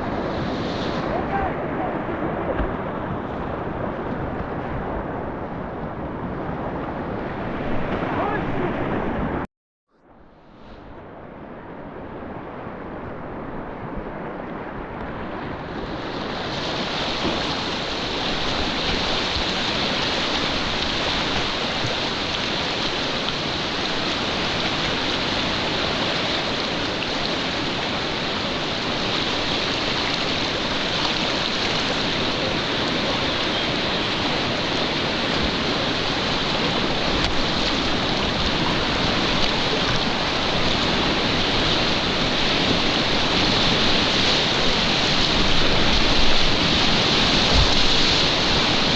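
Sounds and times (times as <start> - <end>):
mountain stream rushing: 0.0 - 9.5, 10.8 - 48.9.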